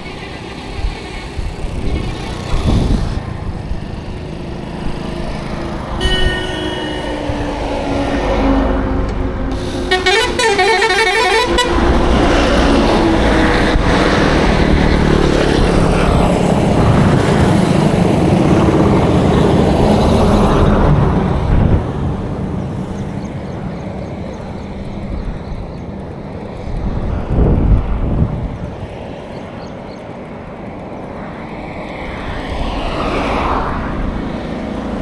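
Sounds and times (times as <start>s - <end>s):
heavy vehicle passing: 0.0s - 35.0s
traffic noise: 0.0s - 35.0s
warbling vehicle horn: 5.9s - 12.8s.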